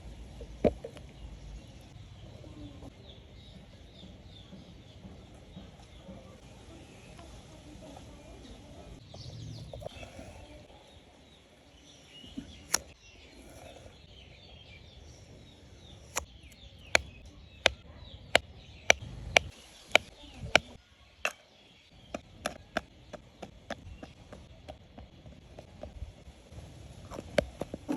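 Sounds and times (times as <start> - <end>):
chopping strikes on wood: 12.7 - 12.9.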